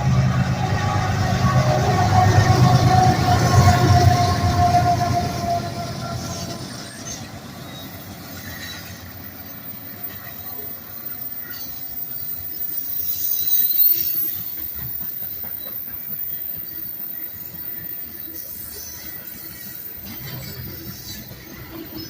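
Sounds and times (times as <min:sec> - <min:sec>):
freight train rolling past: 0:00.0 - 0:22.0
faint wheel squeal: 0:01.4 - 0:22.0
wheels clicking on rails: 0:06.2 - 0:22.0.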